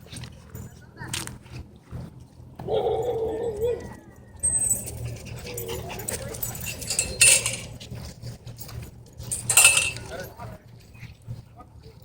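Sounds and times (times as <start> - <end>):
metal clinking and jingling: 4.4 - 10.5.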